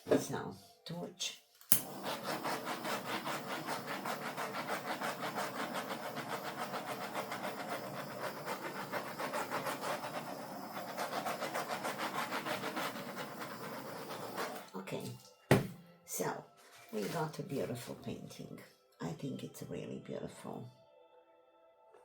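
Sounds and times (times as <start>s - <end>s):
gas torch hissing: 1.7s - 14.7s.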